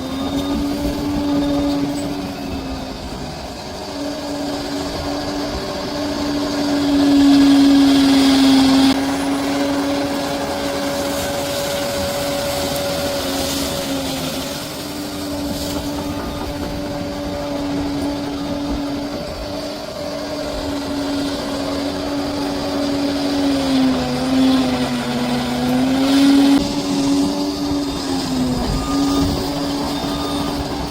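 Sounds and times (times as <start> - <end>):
bulldozer diesel engine running: 0.0 - 30.9.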